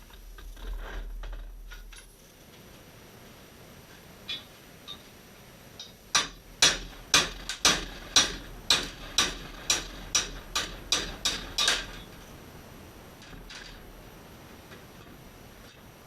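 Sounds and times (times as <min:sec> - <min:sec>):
hammer striking metal: 0:05.8 - 0:12.2.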